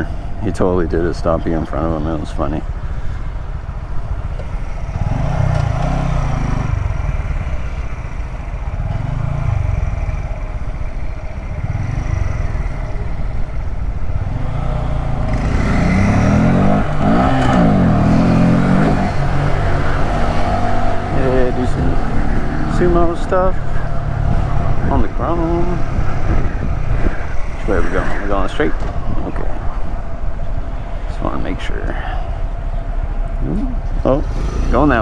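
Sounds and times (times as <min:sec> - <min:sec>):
motorcycle engine revving: 0:00.0 - 0:35.0
wind rush: 0:23.5 - 0:32.9.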